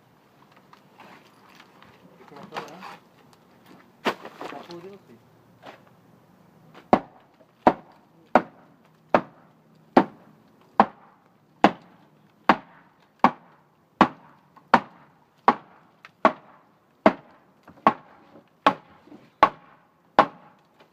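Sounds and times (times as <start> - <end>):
strikes on wood: 6.8 - 10.2, 10.8 - 20.6.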